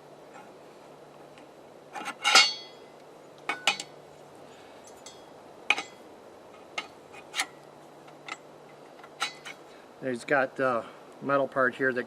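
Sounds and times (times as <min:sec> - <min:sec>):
steel blades clanking together: 0:02.0 - 0:02.8, 0:03.5 - 0:03.9, 0:04.9 - 0:06.0, 0:09.0 - 0:09.6.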